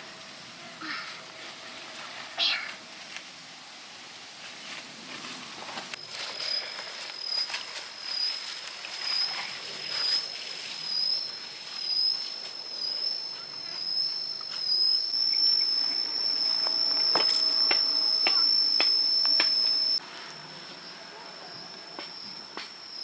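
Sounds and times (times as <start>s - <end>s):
high-pitched insect drone: 6.0s - 23.0s.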